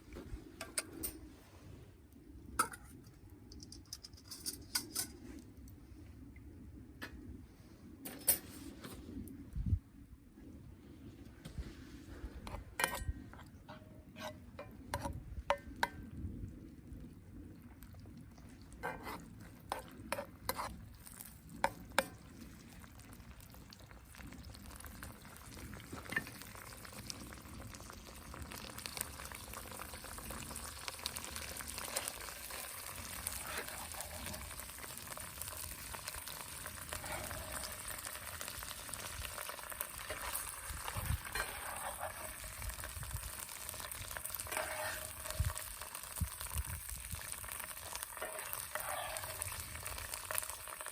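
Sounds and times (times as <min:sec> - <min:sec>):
food sizzling in a pan: 0:18.8 - 0:50.9.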